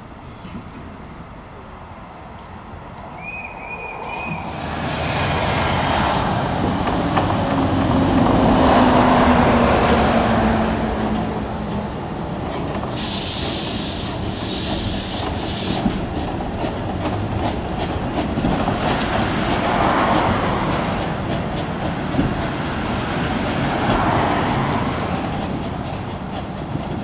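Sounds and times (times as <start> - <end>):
train wheels rumbling on rails: 0.0 - 27.0
trilling steam whistle: 3.2 - 4.6
steam hissing bursts: 12.9 - 16.2.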